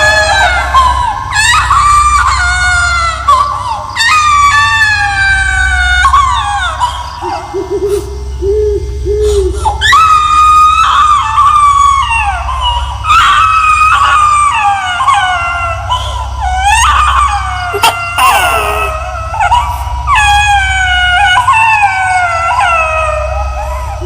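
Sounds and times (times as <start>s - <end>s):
low drone: 0.0s - 24.0s
baby wailing: 9.8s - 24.0s.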